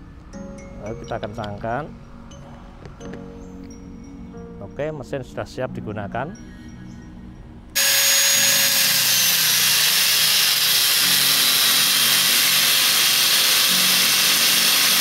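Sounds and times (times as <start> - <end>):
grinder disc cutting steel: 7.8 - 15.0
grinder motor whine: 7.8 - 15.0.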